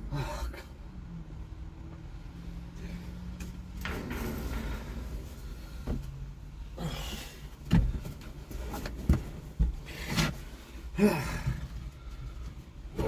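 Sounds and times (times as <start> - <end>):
knocks and clunks: 3.3 - 10.5.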